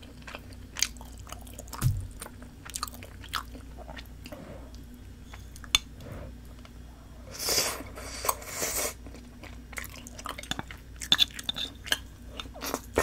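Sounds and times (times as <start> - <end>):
biting and chewing food: 0.0 - 5.7
dull thump: 1.8 - 2.2.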